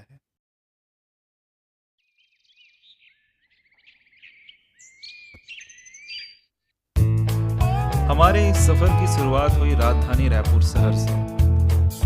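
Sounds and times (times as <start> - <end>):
birds singing: 2.0 - 6.7.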